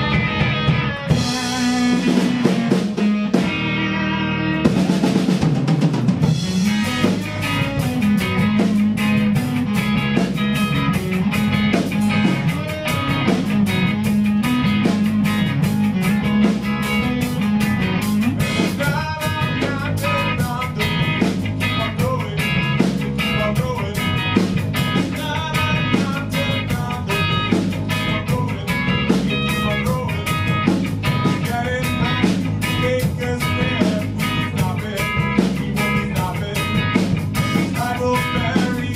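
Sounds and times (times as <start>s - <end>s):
drum kit beat: 0.0s - 38.9s
guitar: 0.0s - 38.9s
live band playing: 0.0s - 38.9s.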